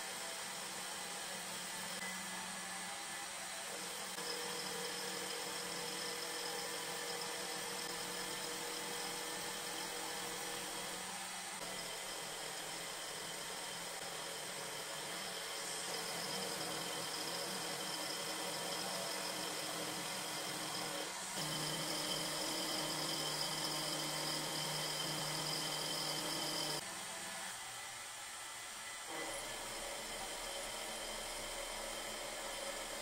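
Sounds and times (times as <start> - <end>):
power tool motor whining: 3.8 - 26.8.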